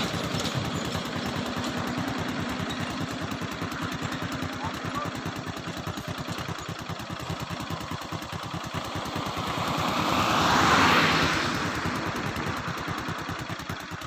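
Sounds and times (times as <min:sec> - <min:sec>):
vehicle passing on road: 0:00.0 - 0:05.1, 0:07.2 - 0:14.0
engine idling: 0:00.0 - 0:14.0.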